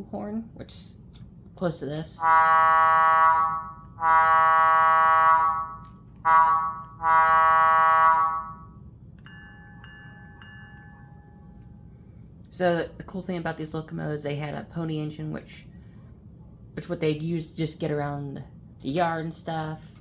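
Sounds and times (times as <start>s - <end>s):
locomotive air horn blasts: 2.2s - 8.8s.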